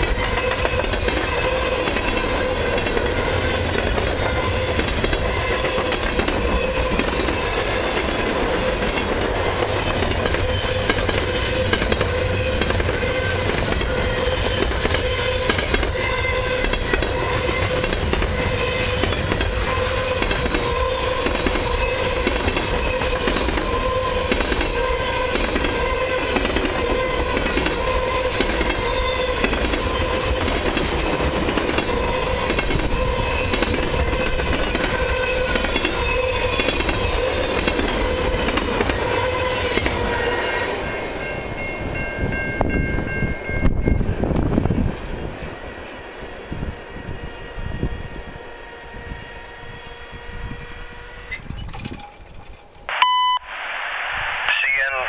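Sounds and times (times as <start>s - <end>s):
freight train rumbling past: 0.0s - 51.9s
high ringing tone: 45.5s - 53.5s.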